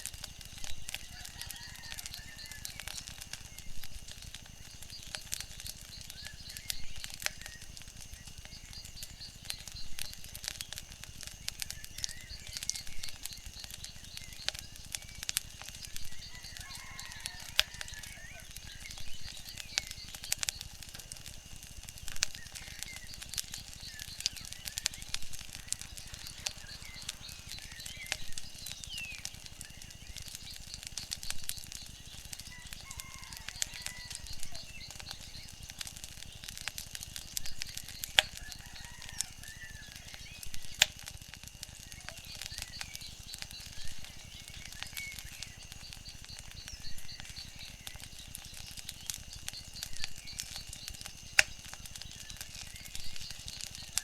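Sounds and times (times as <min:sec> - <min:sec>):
wood fire crackling and popping: 0:00.0 - 0:54.0
bird chirps: 0:11.4 - 0:20.7, 0:22.2 - 0:36.4, 0:37.2 - 0:40.8, 0:41.7 - 0:54.0.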